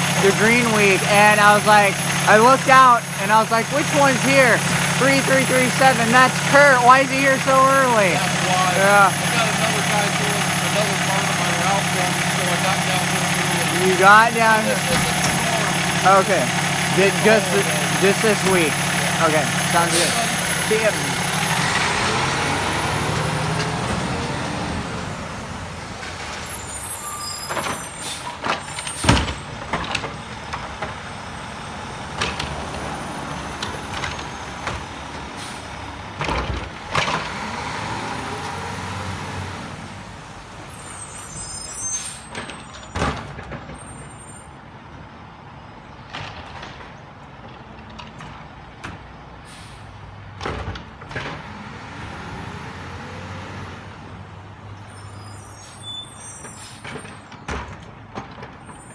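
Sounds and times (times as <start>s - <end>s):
garbage truck engine: 0.0s - 58.9s
air brakes hissing: 8.2s - 21.4s, 49.4s - 50.0s, 55.0s - 57.0s.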